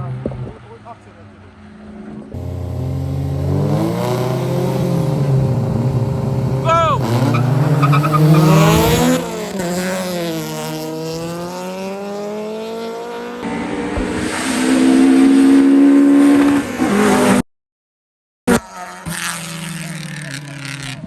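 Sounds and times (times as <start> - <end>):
racing car engine revving: 2.4 - 17.4.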